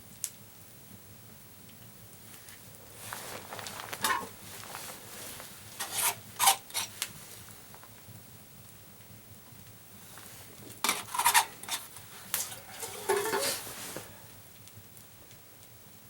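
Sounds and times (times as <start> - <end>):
rasping scrapes: 5.7 - 7.0, 10.9 - 14.1.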